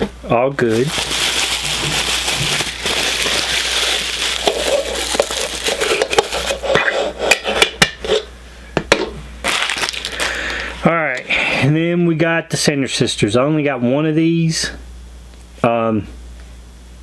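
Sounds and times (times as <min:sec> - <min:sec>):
plastic packaging rustling: 0:00.0 - 0:06.8, 0:09.4 - 0:10.8.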